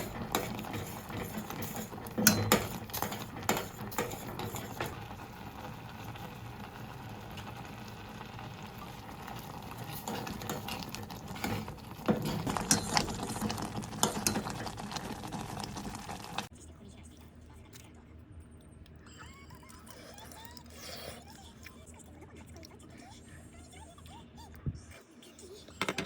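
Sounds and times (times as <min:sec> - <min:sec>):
utensil clinking against cookware: 0:00.0 - 0:05.1, 0:09.3 - 0:14.9
cooking noise: 0:00.0 - 0:16.5.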